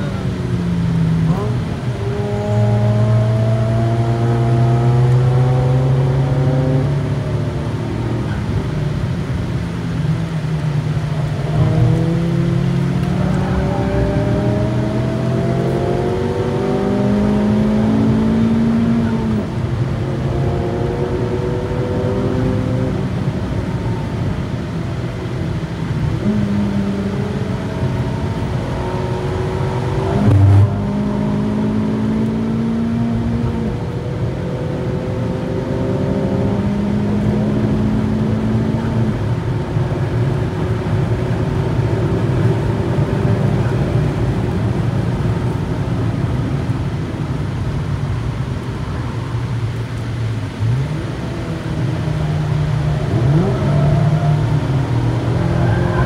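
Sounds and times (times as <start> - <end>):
car engine revving: 0.0 - 46.7, 49.6 - 56.0
road noise: 0.0 - 56.0.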